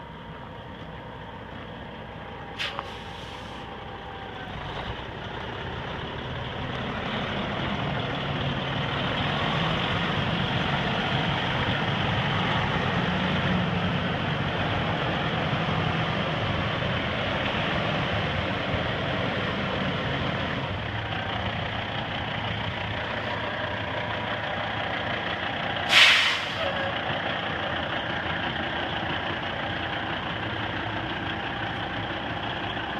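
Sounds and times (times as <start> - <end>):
diesel truck engine running: 0.0 - 32.9
air brakes hissing: 2.6 - 3.8, 25.9 - 26.8.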